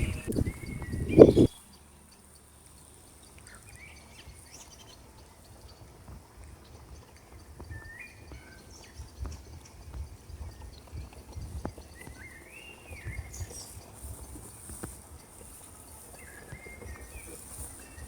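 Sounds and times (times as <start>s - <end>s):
soft low thumps: 0.0s - 1.5s
small bird chirping: 0.0s - 5.9s, 6.6s - 18.0s.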